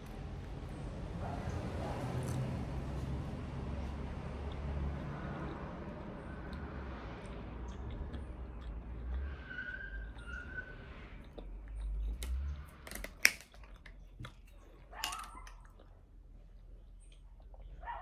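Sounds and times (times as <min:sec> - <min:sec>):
person chewing food: 0:01.5 - 0:18.0
small clicks and crackles: 0:11.8 - 0:16.0.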